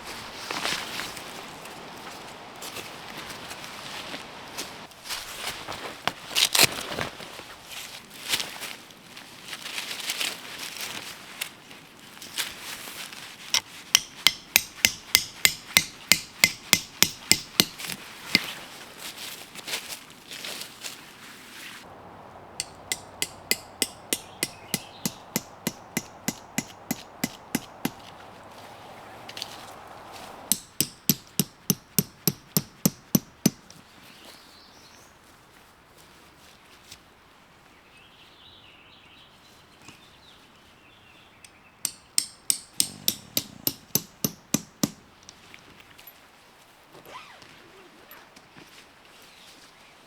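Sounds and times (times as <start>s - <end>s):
hammer blows: 14.0s - 18.5s, 21.9s - 33.6s, 41.9s - 45.0s.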